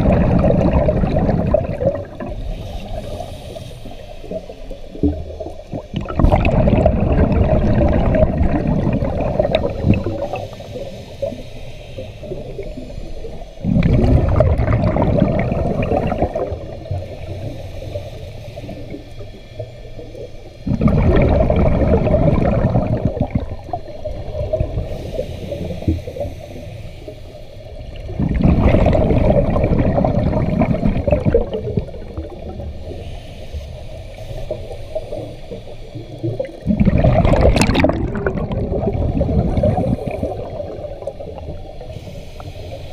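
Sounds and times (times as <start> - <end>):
diver exhaling bubbles: 0.0 - 3.3, 5.0 - 10.8, 13.6 - 17.1, 20.6 - 25.9, 27.9 - 32.6, 36.2 - 41.9
diver inhaling through regulator: 0.0 - 5.1, 6.1 - 42.9.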